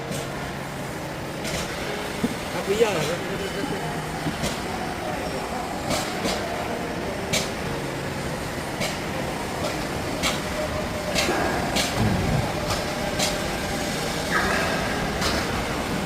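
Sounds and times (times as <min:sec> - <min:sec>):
machinery hum: 0:00.0 - 0:16.0.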